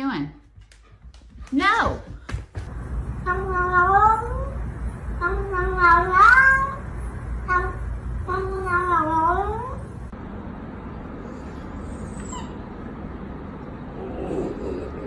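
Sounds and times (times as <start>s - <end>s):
cat meowing: 5.2s - 6.9s, 7.5s - 9.8s.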